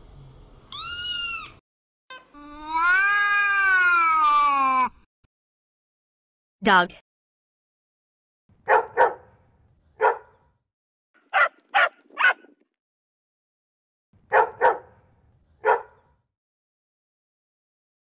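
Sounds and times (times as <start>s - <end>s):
dog barking: 8.6s - 9.4s, 10.0s - 10.5s, 11.2s - 12.6s, 14.3s - 15.0s, 15.6s - 16.2s.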